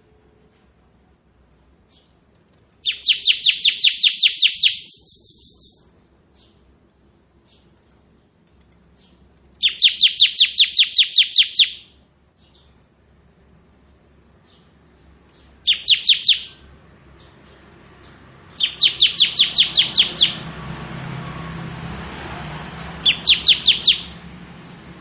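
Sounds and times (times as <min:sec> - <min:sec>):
bird singing rapid trill: 0:02.8 - 0:06.7, 0:09.0 - 0:12.8, 0:13.4 - 0:21.6, 0:22.7 - 0:25.0.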